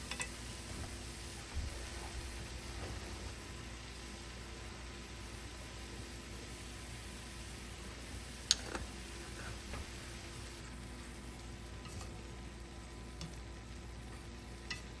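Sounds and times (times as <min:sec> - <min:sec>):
utensil clicking against pan: 0:00.0 - 0:00.4, 0:14.6 - 0:15.0
cabbage sizzling in a pan: 0:00.0 - 0:15.0.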